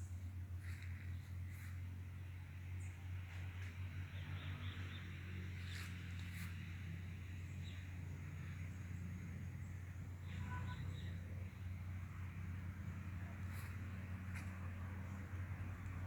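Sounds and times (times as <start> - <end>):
small birds chirping: 0.0 - 2.0, 4.1 - 12.0.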